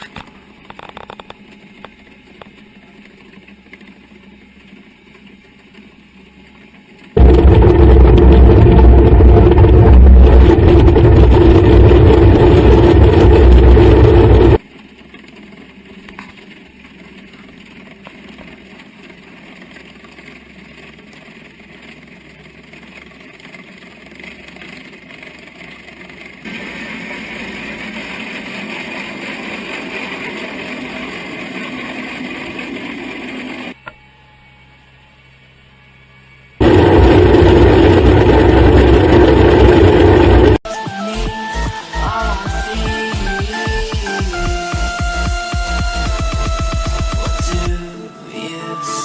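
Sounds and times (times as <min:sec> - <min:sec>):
heavy machinery engines running: 0:07.2 - 0:14.6, 0:36.6 - 0:40.6.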